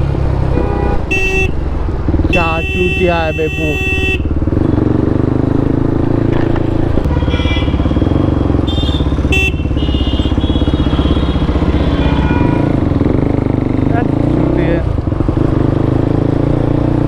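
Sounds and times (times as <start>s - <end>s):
motorcycle engine running: 1.2s - 17.0s.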